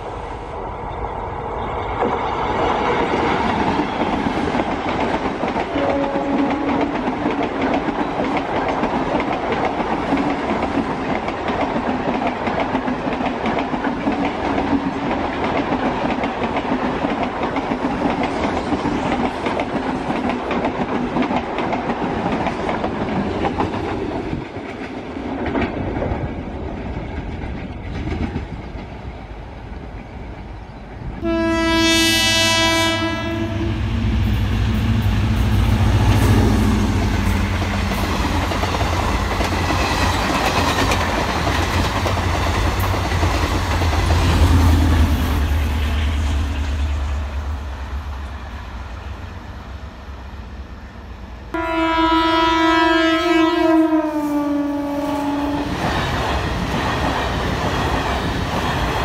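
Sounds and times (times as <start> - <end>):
heavy low train rumble: 0.0 - 59.0
train wheels clattering over rails: 2.0 - 29.3, 33.4 - 47.3, 55.6 - 59.0
train horn blast: 5.7 - 7.0, 31.2 - 38.1, 51.5 - 55.8.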